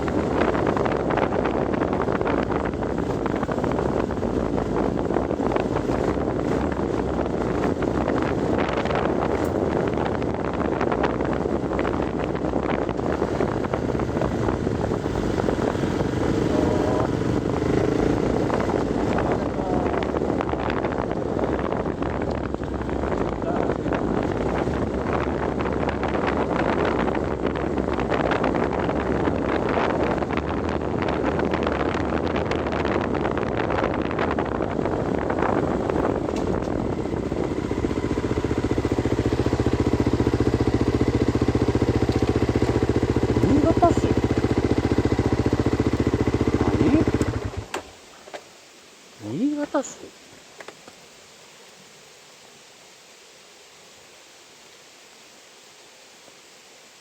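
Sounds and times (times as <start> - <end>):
rushing rumbling noise: 0.0 - 47.9
wind and driving noise: 0.0 - 53.7
vehicle engine idling: 35.4 - 47.8.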